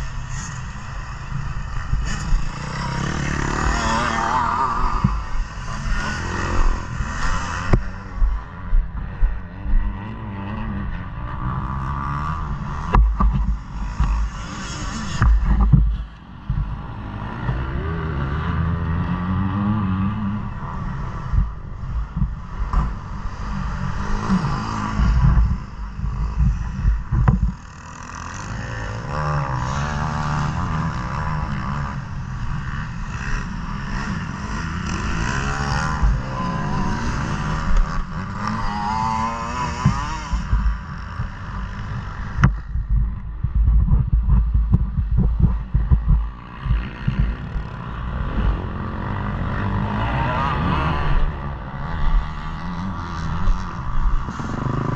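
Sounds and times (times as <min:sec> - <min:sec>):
motocross bike engine revving: 0:00.0 - 0:54.9
heavy low rumbles: 0:40.4 - 0:50.0.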